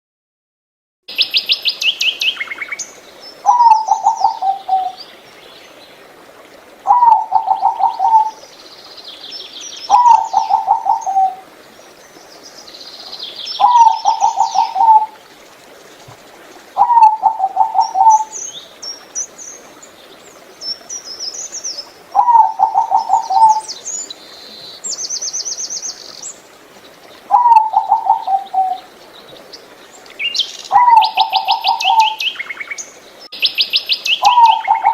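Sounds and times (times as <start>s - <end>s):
small birds chirping and trilling: 1.1s - 6.0s, 6.8s - 34.9s
dove cooing: 3.4s - 5.0s, 6.8s - 8.5s, 9.9s - 11.6s, 13.6s - 15.4s, 16.1s - 18.4s, 22.0s - 23.8s, 27.2s - 29.0s, 30.7s - 32.3s, 34.2s - 34.9s.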